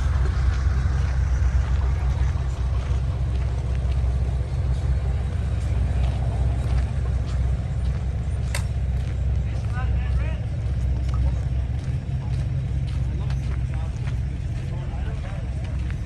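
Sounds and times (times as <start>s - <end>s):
diesel truck engine rumbling: 0.0s - 16.0s
sharp click: 8.5s - 8.8s.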